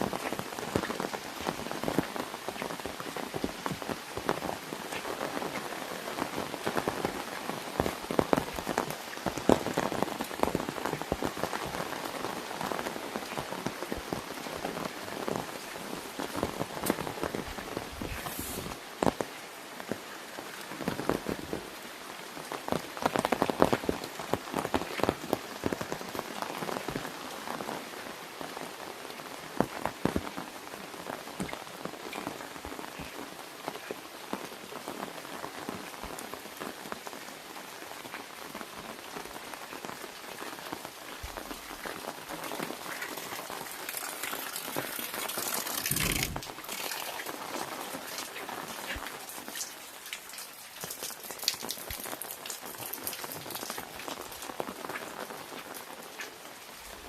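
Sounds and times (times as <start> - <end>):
rain drumming on an umbrella: 0.0 - 57.0.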